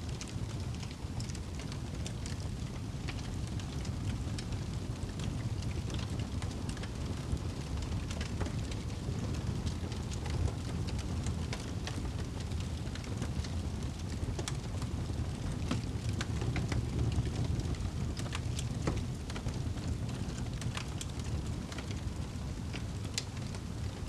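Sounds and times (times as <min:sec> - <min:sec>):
wood campfire crackling: 0:00.0 - 0:24.0.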